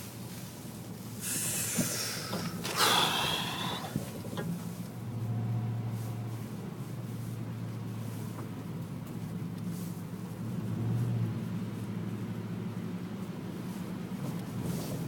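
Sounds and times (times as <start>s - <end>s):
vehicle engine hum: 0.0s - 15.0s
breathy exhale: 1.2s - 4.4s.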